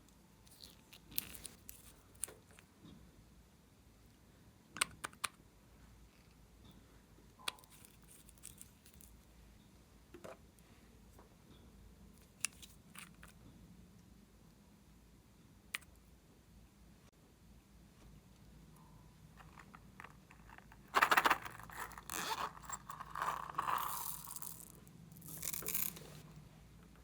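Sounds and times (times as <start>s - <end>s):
small objects clicking and snapping: 19.4s - 26.2s.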